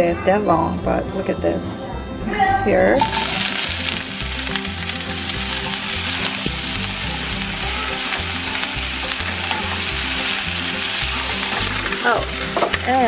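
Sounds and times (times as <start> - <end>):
vegetables sizzling in oil: 3.0 - 13.0
water spitting in oil: 3.0 - 13.0.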